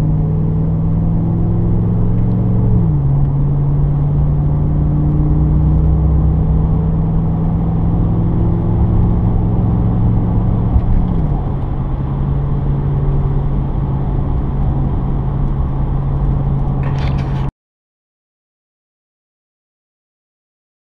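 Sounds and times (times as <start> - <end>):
car engine exhaust drone: 0.0 - 17.5
brief rustle: 16.8 - 17.5.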